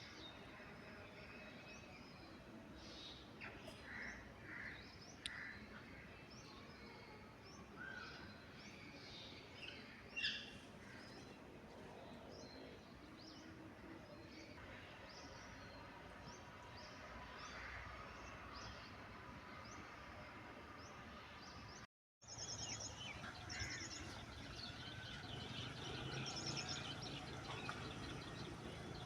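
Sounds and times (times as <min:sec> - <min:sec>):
birds chirping: 0:20.8 - 0:29.0.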